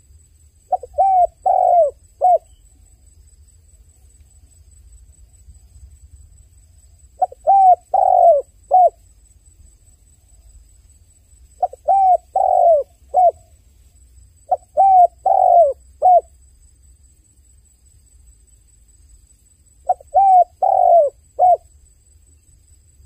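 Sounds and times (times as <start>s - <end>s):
dove cooing: 0.7s - 2.6s, 7.2s - 9.0s, 11.6s - 13.5s, 14.5s - 16.3s, 19.8s - 21.7s.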